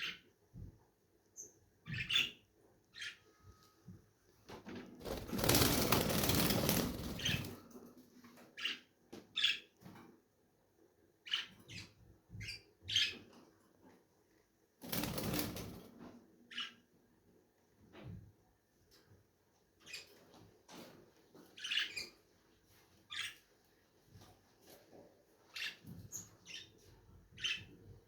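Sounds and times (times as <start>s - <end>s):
wing flapping: 5.0s - 7.6s, 14.8s - 15.9s.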